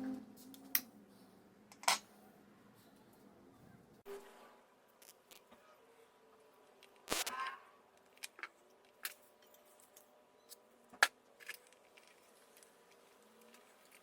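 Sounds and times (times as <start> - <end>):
tools and metal parts clicking: 11.4 - 14.0.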